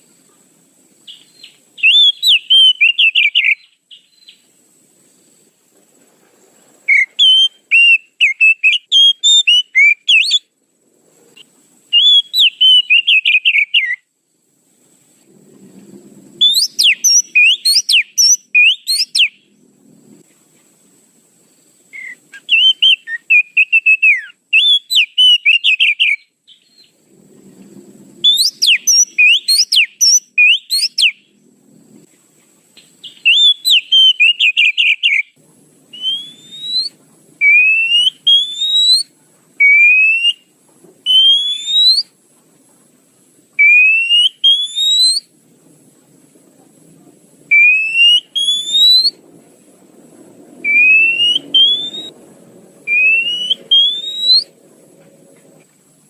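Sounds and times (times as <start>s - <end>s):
bird rising whistles: 1.1s - 4.4s, 6.9s - 10.5s, 11.9s - 14.0s, 16.4s - 19.5s, 21.9s - 27.0s, 28.2s - 31.2s, 33.0s - 35.3s, 35.9s - 42.1s, 43.6s - 45.3s, 47.5s - 49.2s, 50.6s - 52.2s, 52.9s - 54.6s
bird chattering: 50.7s - 52.1s.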